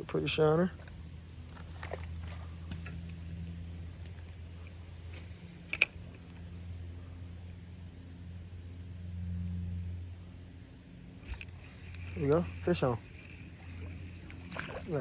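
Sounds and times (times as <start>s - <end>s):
insects trilling: 0.0s - 15.0s
sharp click: 5.6s - 6.0s.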